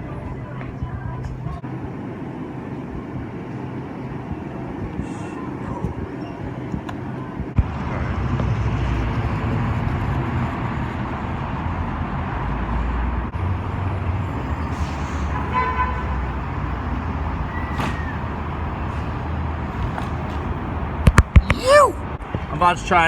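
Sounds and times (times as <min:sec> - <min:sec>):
street traffic rumble: 0:00.0 - 0:23.0
car horn toot: 0:15.3 - 0:16.2.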